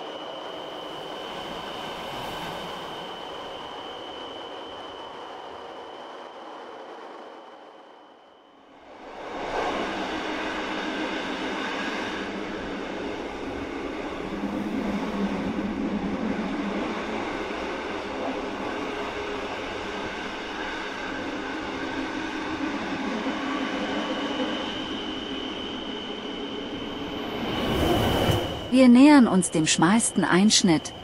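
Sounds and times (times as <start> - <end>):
electric train running: 8.9 - 31.0.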